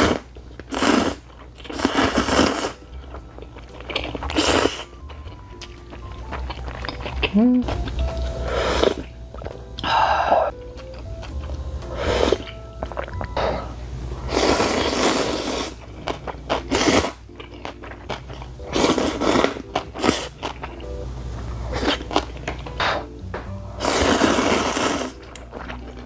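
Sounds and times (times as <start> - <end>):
slurping noodles: 0.0 - 2.8, 3.8 - 5.0, 8.4 - 9.1, 11.9 - 17.2, 18.1 - 20.6, 21.6 - 23.1, 23.8 - 25.9
person chewing: 0.0 - 26.0.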